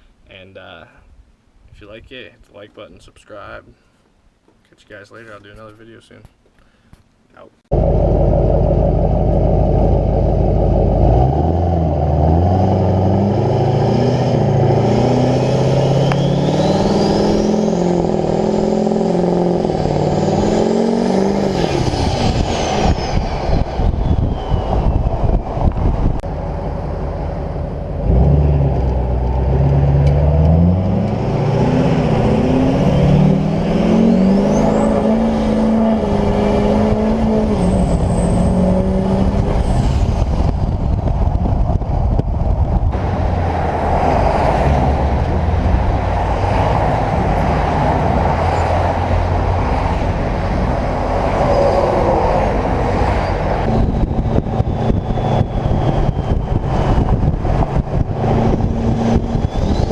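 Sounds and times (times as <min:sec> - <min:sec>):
diesel truck engine revving: 0:07.7 - 0:41.3, 0:42.9 - 0:59.9
turbo whistle: 0:15.8 - 0:17.1, 0:53.7 - 0:57.0, 0:59.0 - 0:59.9.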